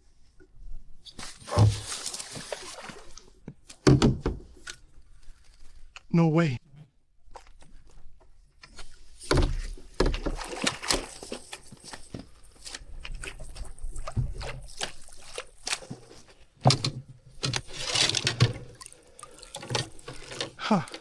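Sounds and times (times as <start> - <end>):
rustling: 1.1 - 3.3, 17.4 - 21.0
water splashing and sloshing: 1.1 - 5.8, 7.2 - 21.0.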